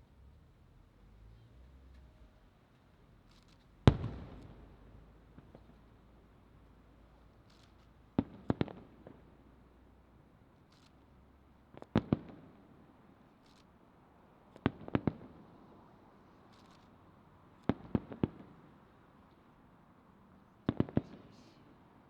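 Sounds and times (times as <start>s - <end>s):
firework shells bursting: 3.4s - 5.8s.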